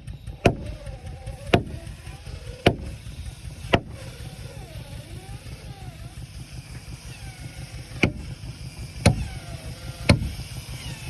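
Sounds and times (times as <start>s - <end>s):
hammer striking wood: 0.4s - 1.9s, 2.6s - 3.0s, 3.7s - 4.1s, 8.0s - 8.3s, 9.0s - 9.4s, 10.0s - 10.4s.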